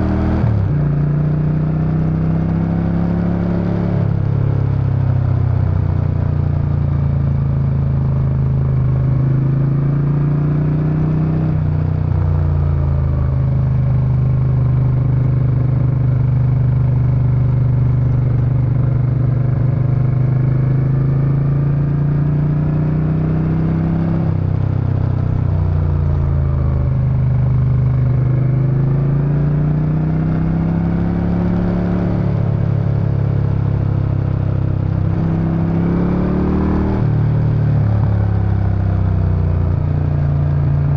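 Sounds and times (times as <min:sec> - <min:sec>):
motorcycle engine and exhaust: 0:00.0 - 0:40.9.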